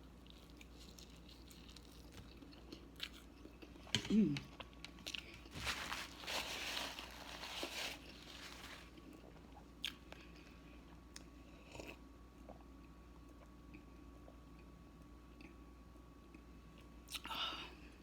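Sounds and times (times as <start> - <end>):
person chewing food: 0.0 - 12.7.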